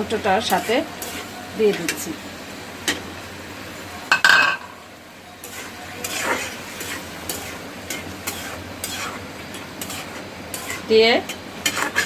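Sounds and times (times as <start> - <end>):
low sizzle: 0.0 - 12.0
utensil scraping while stirring: 0.4 - 1.4, 5.4 - 12.0
utensil clinking against pot: 4.1 - 4.7.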